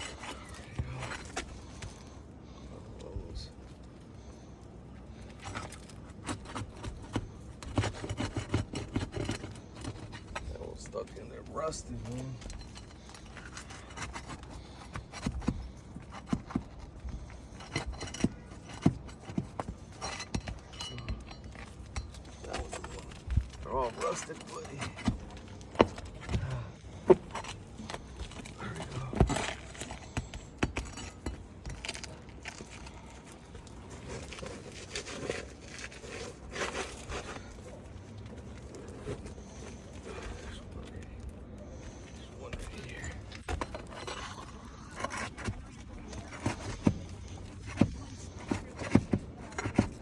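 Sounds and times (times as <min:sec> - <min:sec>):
roof shingles scraping and crinkling: 0:00.0 - 0:50.0
metal tool knocking on shingles: 0:06.3 - 0:10.5.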